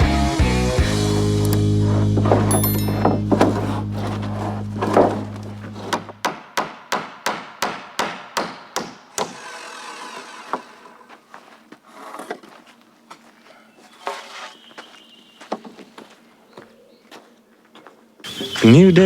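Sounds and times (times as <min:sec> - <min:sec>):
hammer driving nails into wood: 0:05.8 - 0:09.7.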